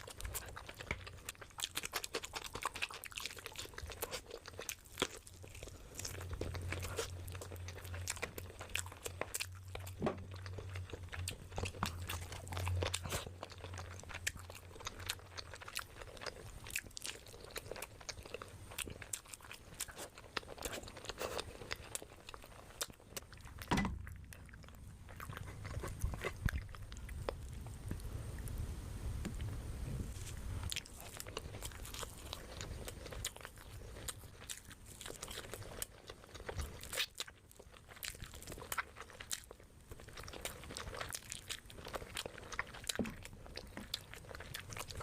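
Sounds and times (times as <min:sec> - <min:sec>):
person chewing food: 0:00.0 - 0:28.6, 0:30.1 - 0:45.0
low hum: 0:23.1 - 0:30.8.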